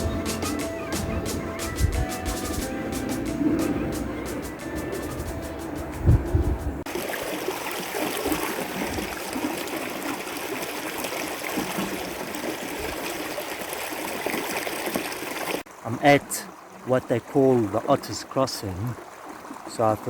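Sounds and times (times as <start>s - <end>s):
stream water running: 0.0s - 20.0s.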